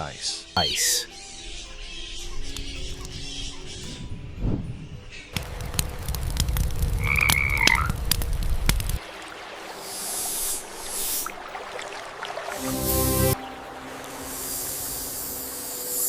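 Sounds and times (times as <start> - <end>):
frogs croaking and clicking: 0.0 - 12.6.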